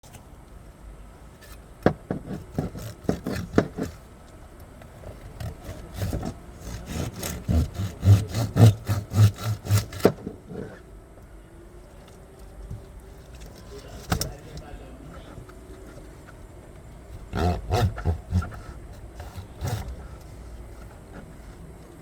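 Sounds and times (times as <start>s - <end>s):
knife sawing through fish: 2.3s - 4.0s, 5.4s - 10.7s, 17.2s - 20.3s.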